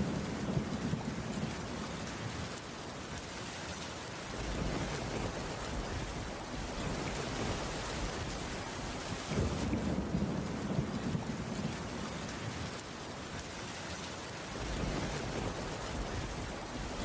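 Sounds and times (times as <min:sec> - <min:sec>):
rain on a wooden roof: 0:00.0 - 0:17.0
distant thunder rumble: 0:04.3 - 0:12.8, 0:14.5 - 0:17.0.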